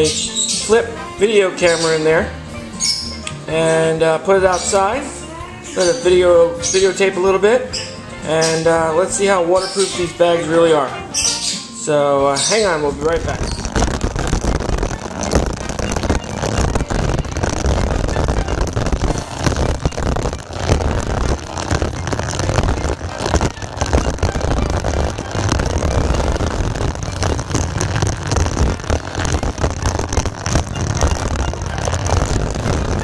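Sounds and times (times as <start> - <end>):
heavy rain on plastic bag: 12.5 - 33.0.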